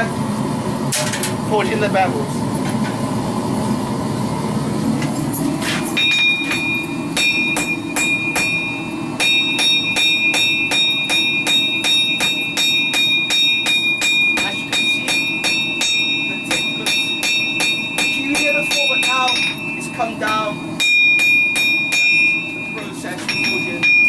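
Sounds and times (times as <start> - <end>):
gas burner noise: 0.0 - 24.0
hammer striking steel on anvil: 5.9 - 24.0.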